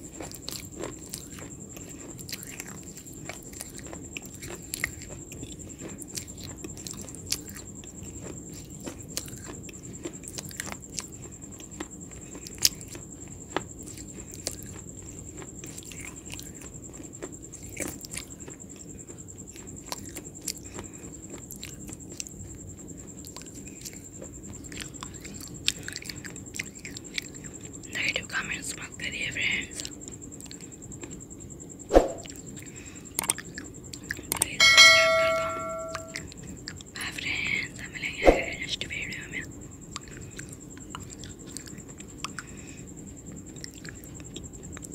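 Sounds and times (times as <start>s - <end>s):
person chewing crunchy food: 0.0s - 27.8s, 32.2s - 34.6s, 39.9s - 44.9s.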